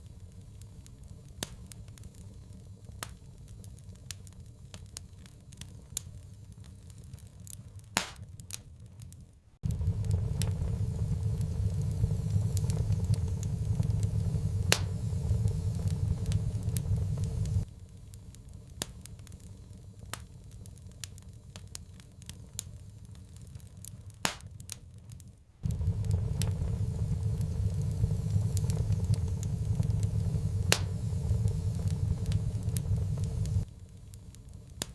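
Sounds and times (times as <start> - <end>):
fire popping: 0.0 - 34.9
wood fire crackling: 0.0 - 34.9
low rumble: 9.6 - 17.7, 25.6 - 33.7.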